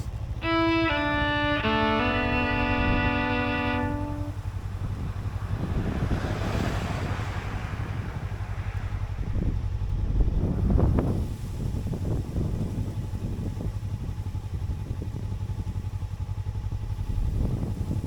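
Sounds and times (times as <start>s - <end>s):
motorcycle engine rumbling: 0.0s - 6.4s
wind buffeting microphone: 1.7s - 14.2s.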